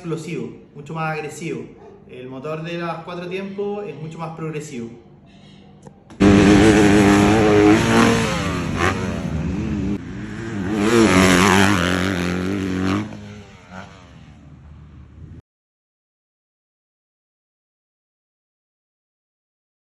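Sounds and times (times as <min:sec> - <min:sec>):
motorcycle engine revving: 0:06.2 - 0:15.4.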